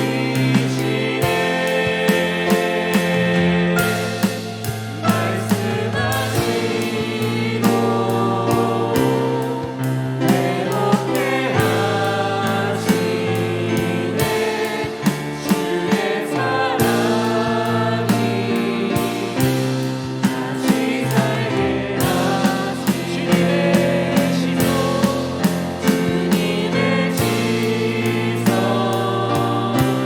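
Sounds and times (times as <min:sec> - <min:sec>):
band playing: 0:00.0 - 0:30.0
steady drum beat: 0:00.0 - 0:30.0
voices singing worship song: 0:00.0 - 0:30.0.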